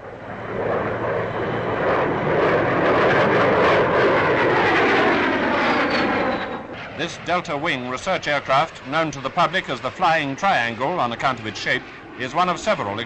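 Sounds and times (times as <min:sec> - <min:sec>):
jet flying past: 0:00.0 - 0:13.0.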